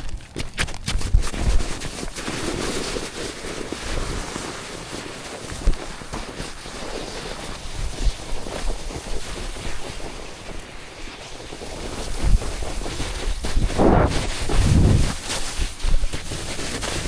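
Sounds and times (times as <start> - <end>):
wind buffeting microphone: 6.8 - 16.3
dull low thumps: 13.6 - 15.2.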